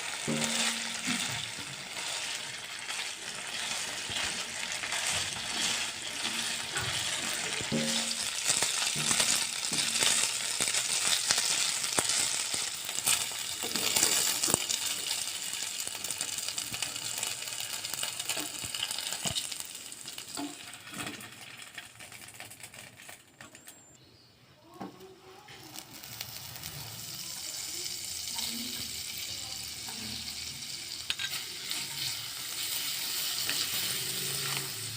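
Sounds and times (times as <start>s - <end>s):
food sizzling in a pan: 0.0s - 23.2s, 24.7s - 34.9s
spatula scraping a pan: 0.1s - 12.3s, 31.1s - 34.9s.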